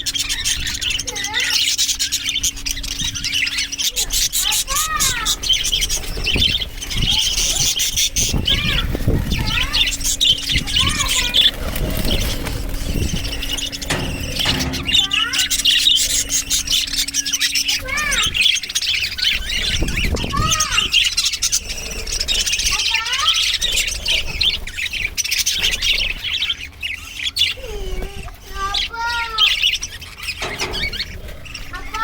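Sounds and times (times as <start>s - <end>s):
budgerigars chattering and chirping: 0.0s - 32.0s.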